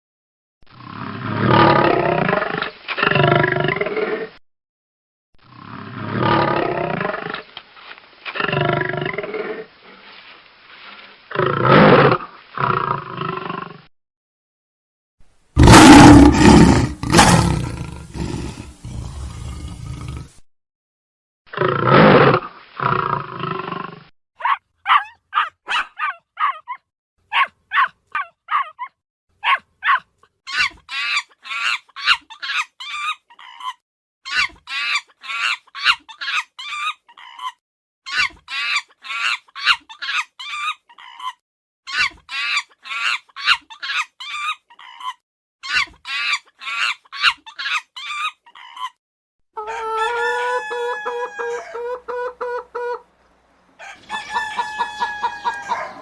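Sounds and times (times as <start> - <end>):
big cat roaring: 15.6 - 20.4
rooster crowing: 49.6 - 52.0, 53.8 - 56.0.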